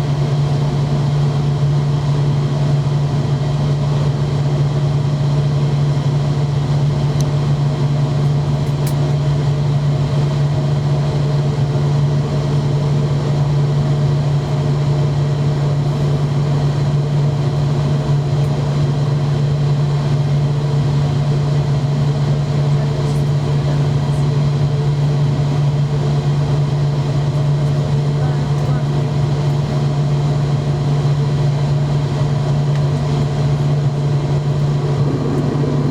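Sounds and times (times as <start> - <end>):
airliner engines humming: 15.4 - 35.9.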